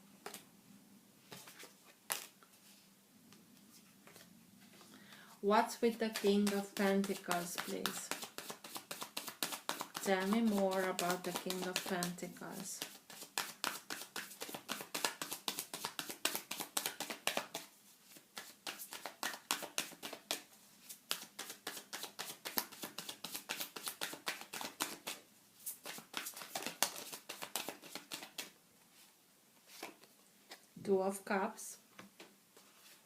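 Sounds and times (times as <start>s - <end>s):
cards being shuffled by hand: 0.2s - 0.4s, 1.3s - 2.4s, 5.9s - 28.6s, 29.6s - 30.6s.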